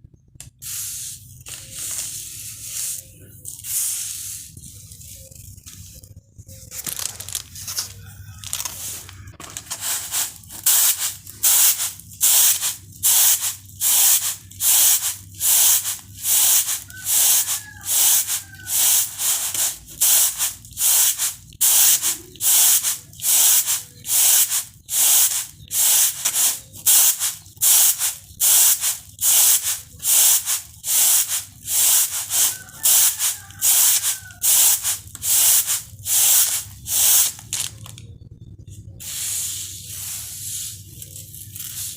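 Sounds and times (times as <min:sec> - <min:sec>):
rice swishing on bamboo tray: 0:08.6 - 0:37.4.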